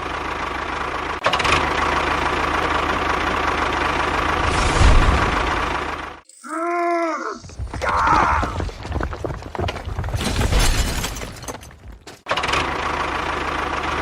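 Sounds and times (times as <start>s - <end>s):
small engine running: 0.0s - 6.2s, 12.3s - 14.0s.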